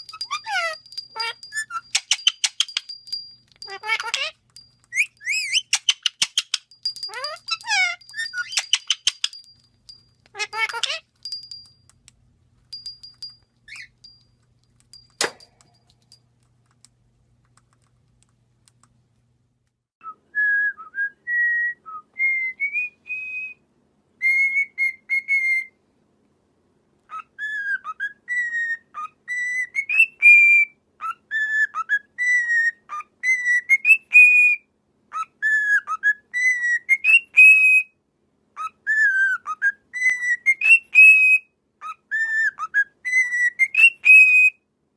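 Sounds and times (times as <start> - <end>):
parrot whistling a tune: 4.9 - 9.4, 20.0 - 23.6, 24.2 - 25.8, 27.1 - 38.0, 38.6 - 44.6
faint clicks: 14.2 - 19.8.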